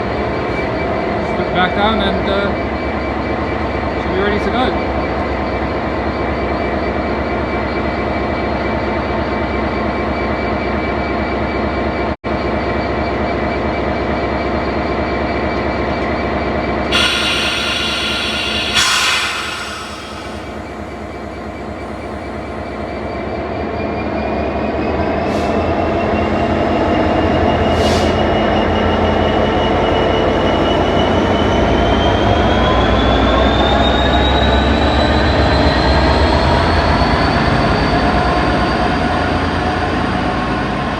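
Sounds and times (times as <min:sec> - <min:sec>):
diesel locomotive engine running: 0:13.9 - 0:40.9
air hiss: 0:17.0 - 0:22.9.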